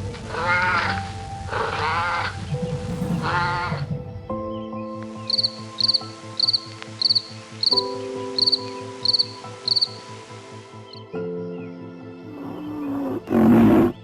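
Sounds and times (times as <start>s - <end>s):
cricket chirping: 2.9s - 4.2s, 5.3s - 7.8s, 8.4s - 10.0s.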